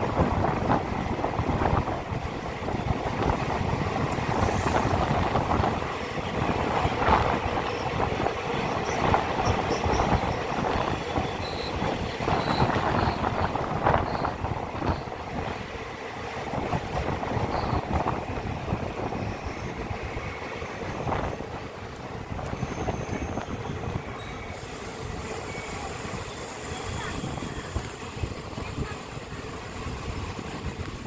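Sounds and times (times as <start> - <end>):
train wheels rumbling on rails: 0.0 - 31.0
high wheel squeals: 8.7 - 15.1, 17.4 - 17.9, 22.5 - 27.9.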